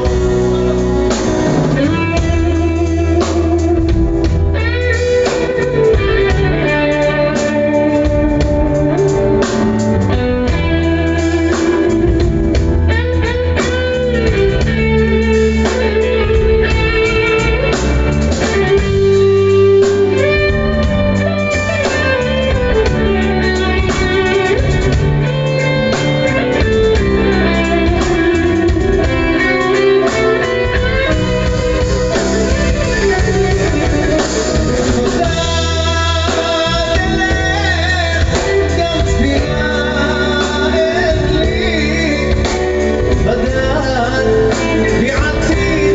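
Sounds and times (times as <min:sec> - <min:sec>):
bass and drums: 0:00.0 - 0:45.9
lead guitar melody: 0:00.0 - 0:45.9.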